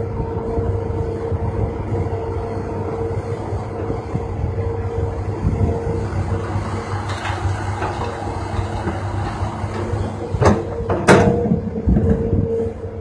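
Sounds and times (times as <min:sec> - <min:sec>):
diesel earthmoving machinery running: 0:00.0 - 0:13.0.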